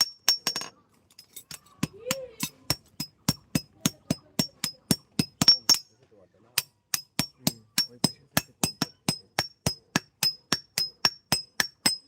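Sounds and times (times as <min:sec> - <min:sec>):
hammer striking metal on anvil: 0:06.6 - 0:12.0.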